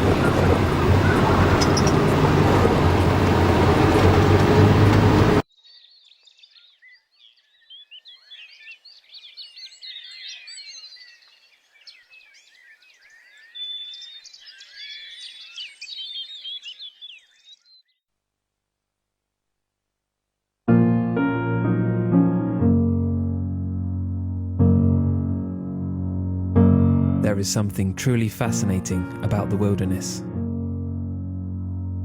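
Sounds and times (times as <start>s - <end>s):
loud steady rumbling: 0.0s - 5.4s
birds singing and chirping: 0.0s - 17.9s.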